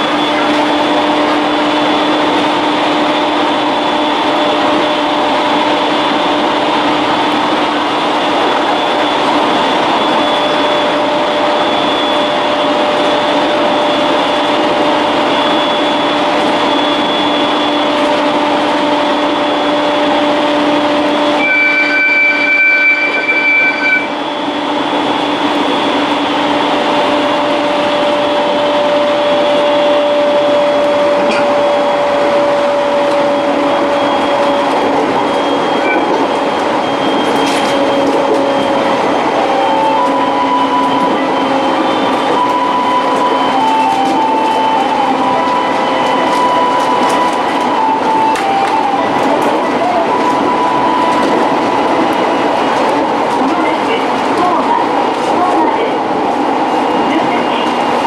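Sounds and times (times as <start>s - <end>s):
freight train passing: 0.0s - 58.0s
train running noise: 0.0s - 58.0s
train horn: 10.4s - 24.7s.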